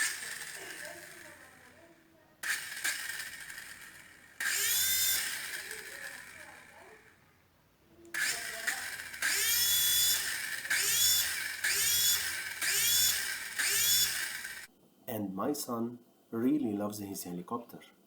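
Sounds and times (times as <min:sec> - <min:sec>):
toy helicopter motor whining: 0:00.0 - 0:07.2, 0:08.1 - 0:14.7.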